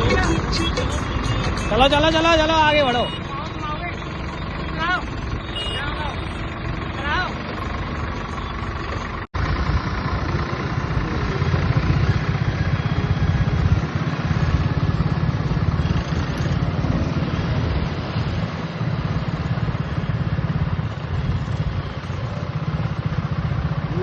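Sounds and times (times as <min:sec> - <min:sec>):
tractor diesel engine chugging: 0:00.0 - 0:16.3.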